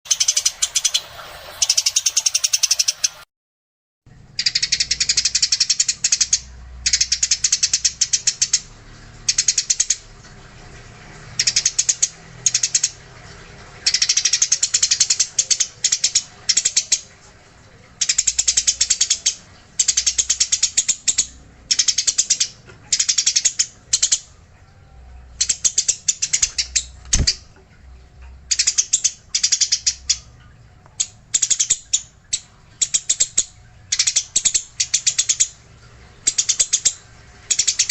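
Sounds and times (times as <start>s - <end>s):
sparrows chirping harshly: 0.1s - 3.2s.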